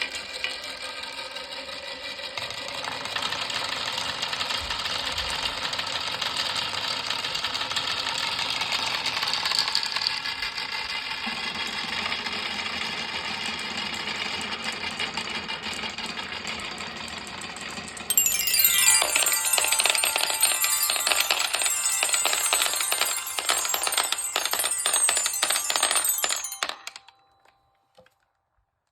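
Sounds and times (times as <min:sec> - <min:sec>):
marbles rattling along track: 0:18.1 - 0:27.2
marbles striking xylophone bars: 0:18.1 - 0:27.7.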